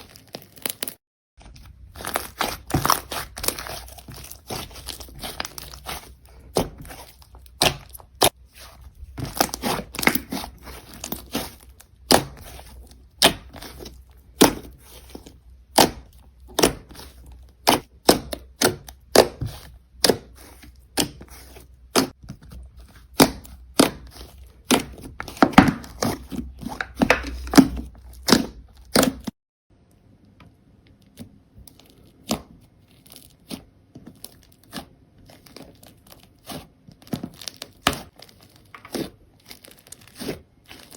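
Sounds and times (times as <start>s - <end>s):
slime popping and crackling: 1.6s - 21.2s.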